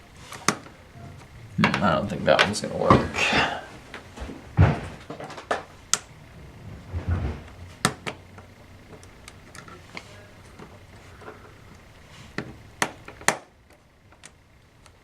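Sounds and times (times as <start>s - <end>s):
dull knocks: 4.2s - 5.4s.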